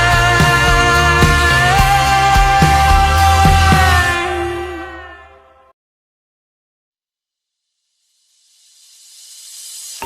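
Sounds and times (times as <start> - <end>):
white-noise riser hiss: 7.6 - 10.0.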